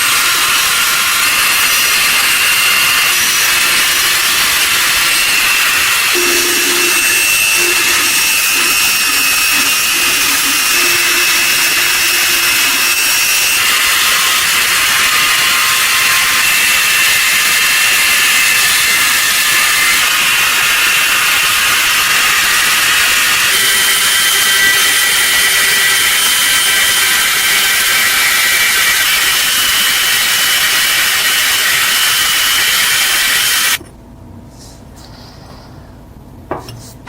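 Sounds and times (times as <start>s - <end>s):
power tool on steel: 0.0s - 33.8s
low hum: 6.0s - 14.2s.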